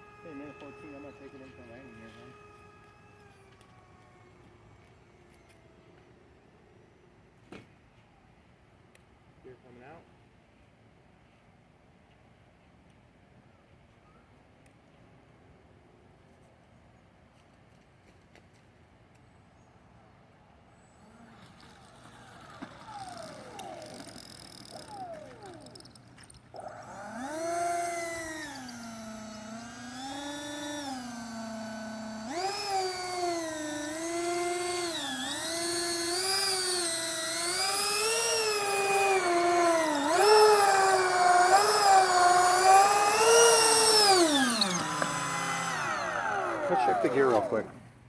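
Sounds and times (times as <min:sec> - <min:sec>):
model jet fans whining: 0:00.0 - 0:07.0, 0:20.6 - 0:48.0.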